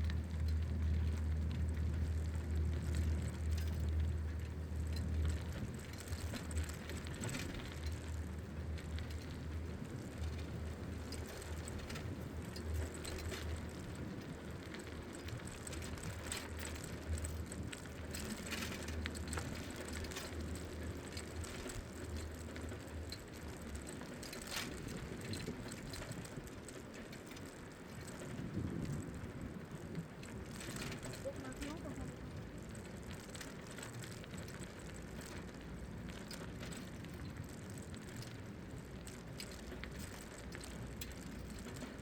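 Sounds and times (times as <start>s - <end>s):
bicycle freewheel ticking: 0.0s - 42.0s
bike rattling over path: 0.0s - 42.0s
wind buffeting on microphone: 28.2s - 31.0s.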